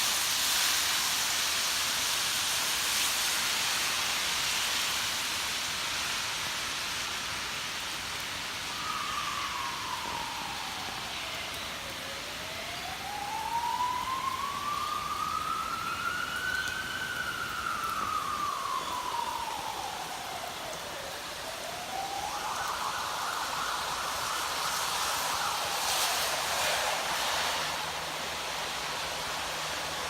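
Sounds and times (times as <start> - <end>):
steady rain hiss: 0.0 - 30.0
ambulance siren wailing and yelping: 8.7 - 27.1.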